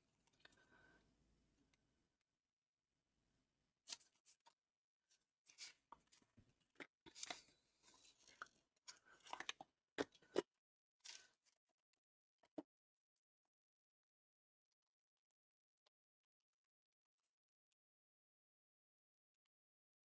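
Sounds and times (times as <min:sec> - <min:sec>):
paper rustling: 0:07.1 - 0:09.5.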